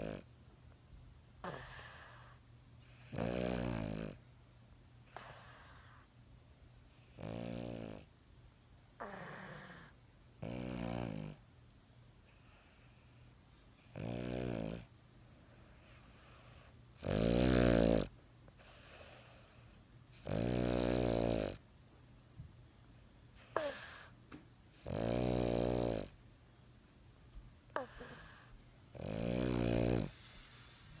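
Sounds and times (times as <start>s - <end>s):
dog snoring: 0.0s - 0.3s, 1.4s - 4.2s, 5.1s - 6.1s, 6.8s - 8.1s, 9.0s - 11.4s, 12.3s - 14.9s, 15.6s - 21.6s, 23.4s - 26.2s, 27.7s - 31.0s
soft breathing: 27.7s - 28.8s, 29.5s - 31.0s.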